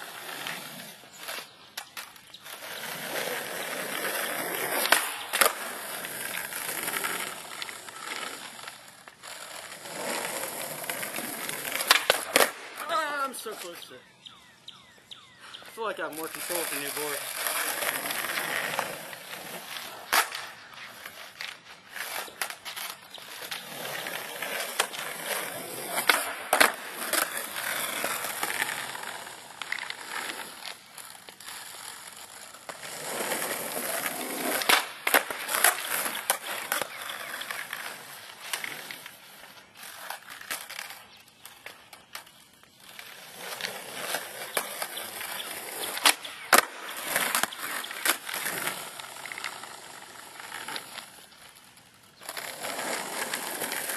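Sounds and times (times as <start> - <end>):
skateboard wheels rolling: 0.0 - 53.9
skateboard tail pops and clacks: 11.8 - 12.7, 34.5 - 37.5.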